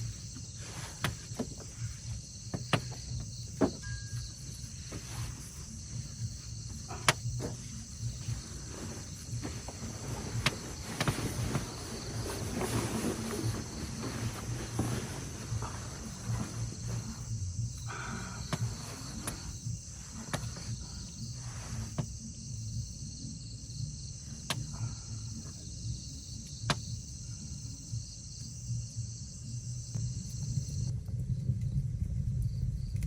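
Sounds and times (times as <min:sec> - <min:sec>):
insects chirring: 0:00.0 - 0:33.0
low rumble: 0:30.6 - 0:33.0.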